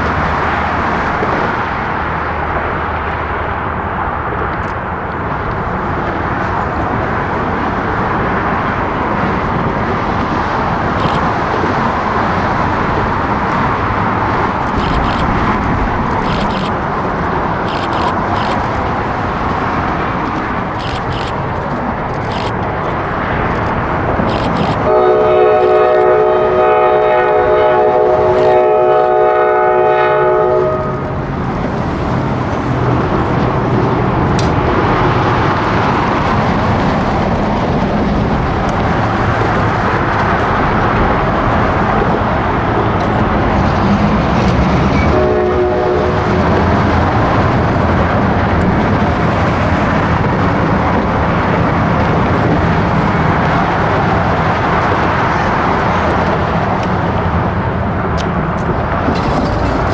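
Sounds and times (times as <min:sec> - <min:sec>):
train rolling past rumble: 0:00.0 - 0:59.9
locomotive air horn: 0:24.3 - 0:31.3, 0:39.2 - 0:46.8.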